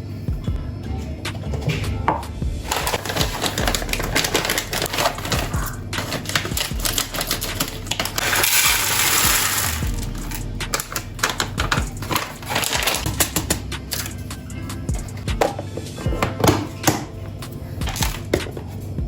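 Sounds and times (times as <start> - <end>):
light music: 0.0 - 19.0
plastic containers clicking and clattering: 2.7 - 9.9, 10.7 - 14.1, 15.0 - 17.1, 17.8 - 18.8.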